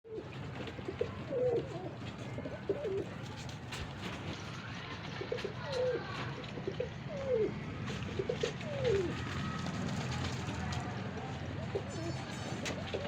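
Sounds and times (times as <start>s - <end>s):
pigeons cooing: 0.1s - 3.2s, 5.3s - 9.7s, 11.6s - 13.0s.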